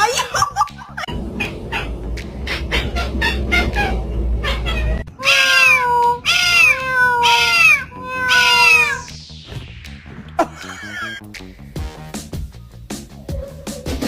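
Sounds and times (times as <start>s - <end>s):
cat meowing: 2.7s - 9.1s.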